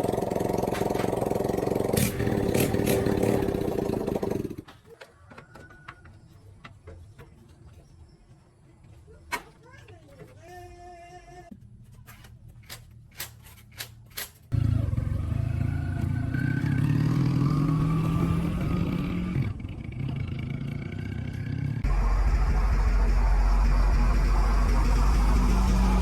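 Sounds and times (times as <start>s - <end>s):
small motorcycle engine running: 0.0s - 4.6s, 14.5s - 26.0s.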